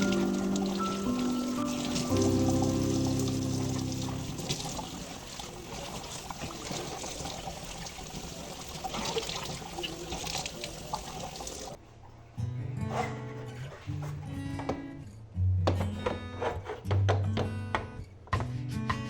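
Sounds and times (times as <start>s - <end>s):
water running from a tap: 0.0s - 11.8s.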